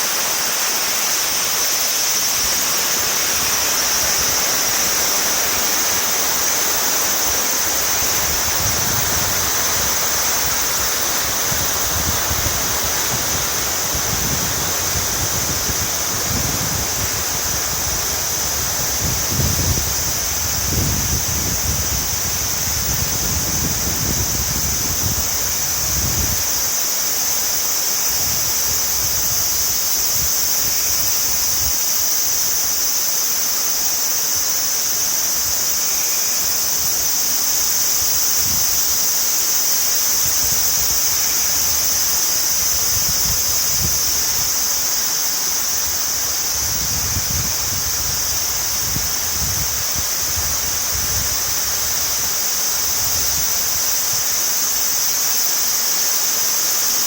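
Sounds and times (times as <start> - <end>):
wind gusts on microphone: 2.1 - 26.8, 28.0 - 31.9, 40.0 - 45.0, 45.6 - 54.3.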